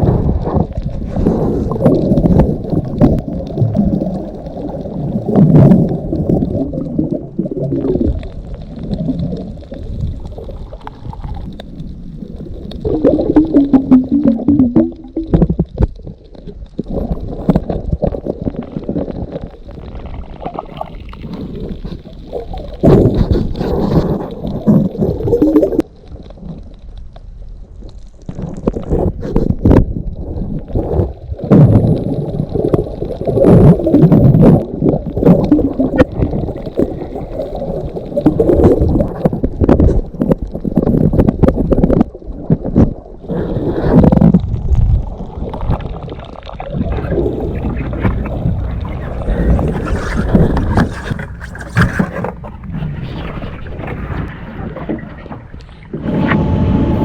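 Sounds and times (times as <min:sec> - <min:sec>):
muffled underwater sloshing: 0:00.0 - 0:57.0.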